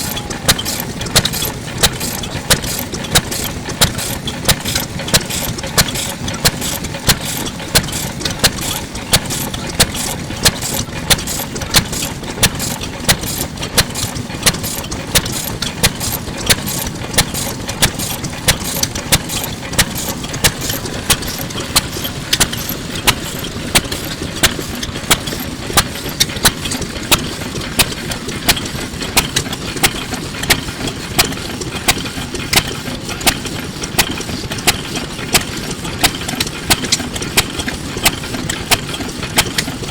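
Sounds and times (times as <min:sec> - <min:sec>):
stationary engine chugging: 0:00.0 - 0:39.9.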